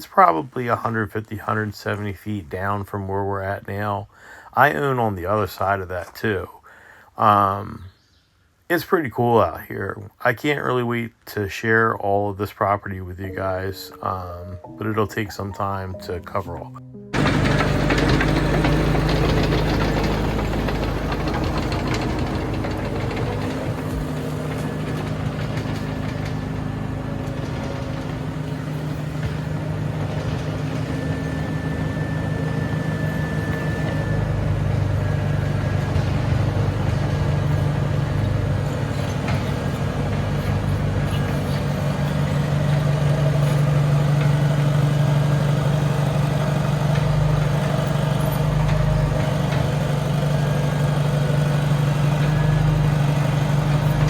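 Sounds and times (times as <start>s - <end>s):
heavy machine engine running: 17.1s - 54.0s.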